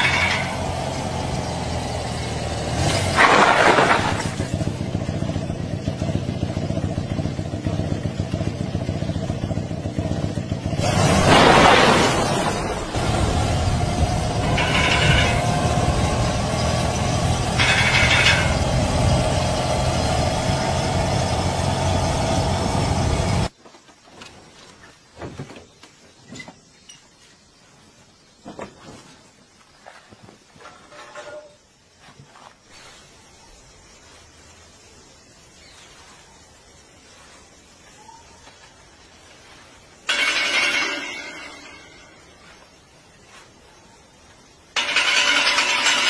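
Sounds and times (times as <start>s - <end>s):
motorcycle engine running: 0.0s - 11.6s, 12.2s - 23.5s, 39.4s - 42.7s, 44.8s - 46.0s.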